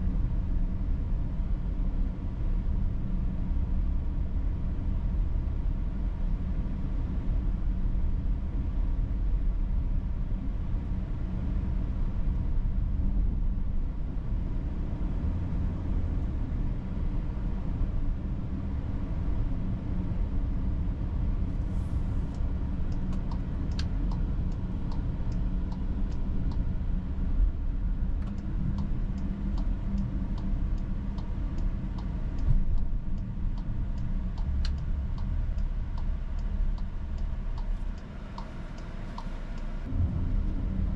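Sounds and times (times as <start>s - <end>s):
engine and road rumble: 0.0s - 40.9s
turn signal ticking: 22.3s - 27.3s, 28.0s - 39.9s.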